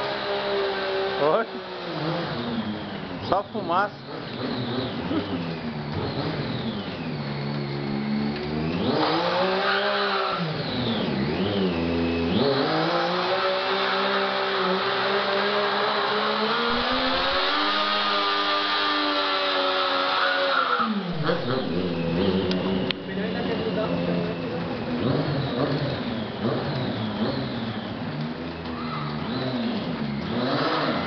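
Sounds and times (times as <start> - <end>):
motorcycle engine revving: 0.0 - 31.0
spinning tyre hissing: 4.3 - 31.0.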